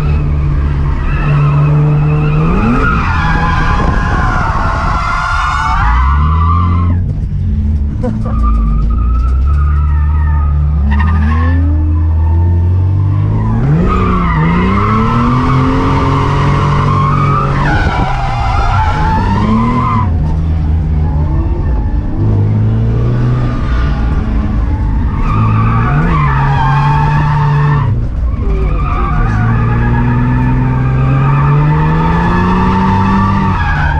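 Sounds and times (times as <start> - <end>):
car engine revving: 0.0 - 33.9
tyre squeal: 8.0 - 20.1.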